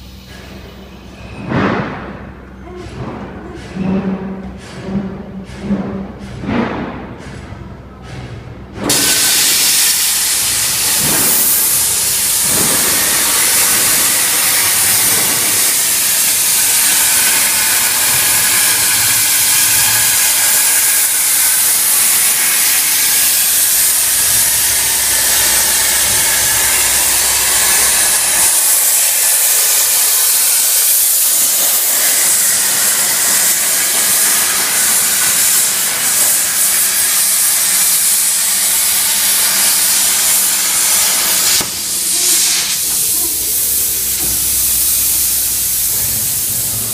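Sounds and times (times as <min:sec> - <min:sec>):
plasma torch hissing: 0:08.9 - 0:46.9.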